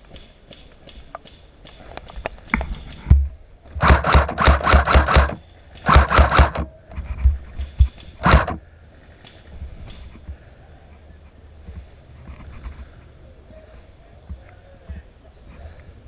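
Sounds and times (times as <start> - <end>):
airsoft gun firing full-auto: 3.8 - 6.7, 8.2 - 8.6
sharp knock: 3.8 - 6.7, 8.2 - 8.6.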